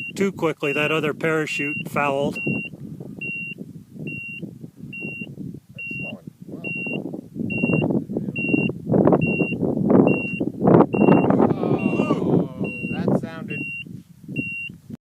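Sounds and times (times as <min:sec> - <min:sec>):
short high electronic beeps: 0:01.7 - 0:04.4, 0:05.0 - 0:07.8, 0:08.4 - 0:10.4, 0:11.0 - 0:13.8.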